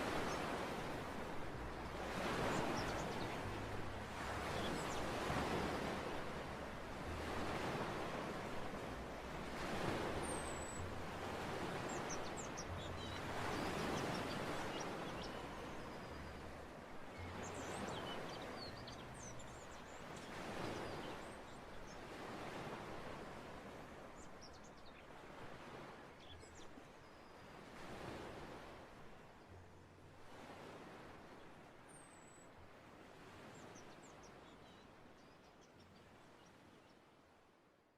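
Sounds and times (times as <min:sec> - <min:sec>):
sea waves washing onto beach: 0:00.0 - 0:29.6
small birds chirping faintly: 0:00.0 - 0:37.9.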